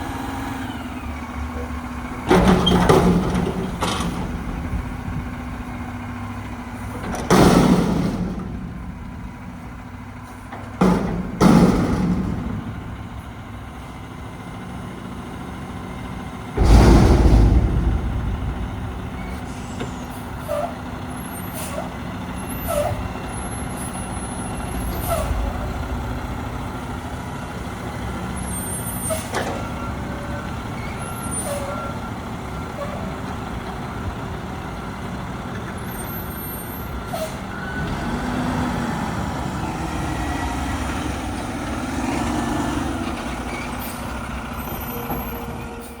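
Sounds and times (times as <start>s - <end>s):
garbage truck engine running: 0.0s - 46.0s
air brake hisses: 21.4s - 21.9s.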